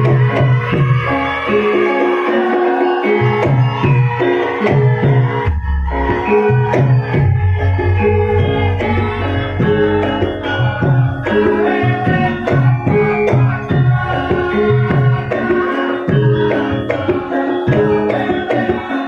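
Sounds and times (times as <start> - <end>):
ringing metallophone tones: 0.0 - 19.0.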